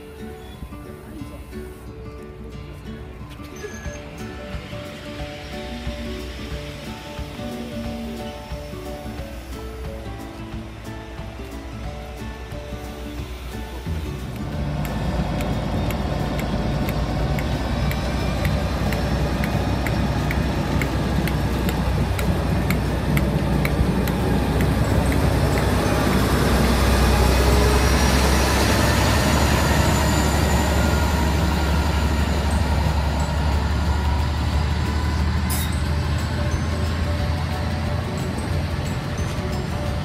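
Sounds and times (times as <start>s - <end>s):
diesel locomotive engine drone: 0.0s - 40.0s.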